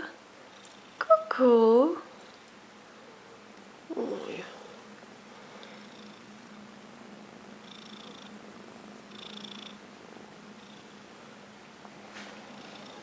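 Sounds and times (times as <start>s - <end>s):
kitten purring: 5.6s - 6.6s, 7.6s - 8.4s, 9.0s - 9.8s, 10.5s - 11.0s, 12.4s - 13.0s.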